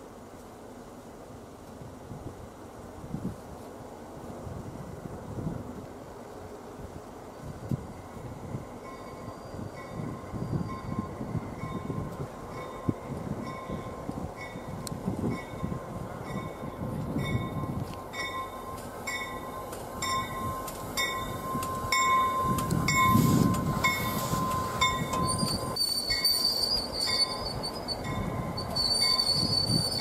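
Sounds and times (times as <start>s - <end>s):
train cars rumbling past: 3.8s - 30.0s
train wheel squeal: 7.3s - 30.0s.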